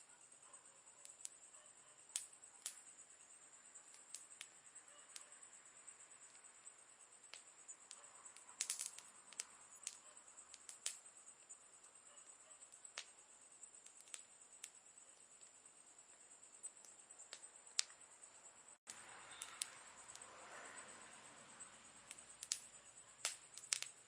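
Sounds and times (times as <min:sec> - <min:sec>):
campfire crackling and popping: 0:02.1 - 0:03.1, 0:03.8 - 0:05.3, 0:07.2 - 0:18.0, 0:18.8 - 0:20.3, 0:22.0 - 0:24.0.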